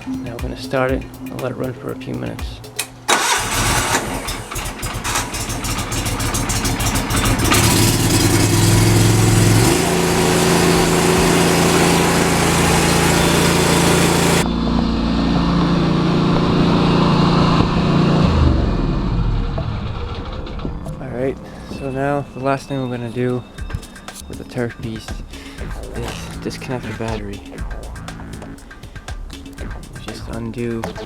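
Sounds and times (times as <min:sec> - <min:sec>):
lawn mower engine running: 0:02.7 - 0:24.5.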